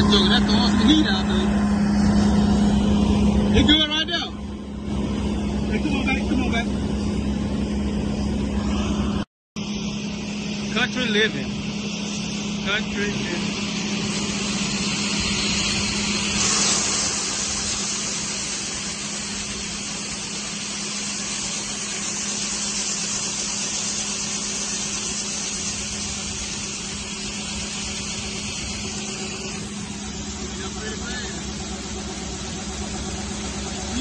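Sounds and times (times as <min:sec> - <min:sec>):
heavy vehicle engine running: 0:00.0 - 0:34.0.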